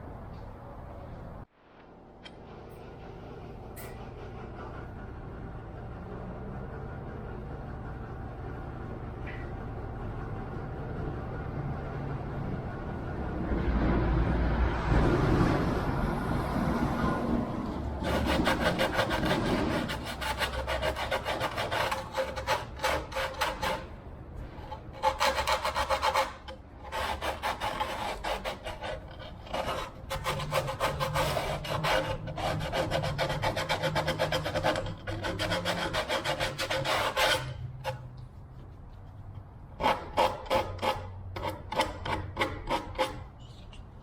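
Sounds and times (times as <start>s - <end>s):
sanding wood by hand: 18.0s - 23.9s, 24.9s - 43.3s.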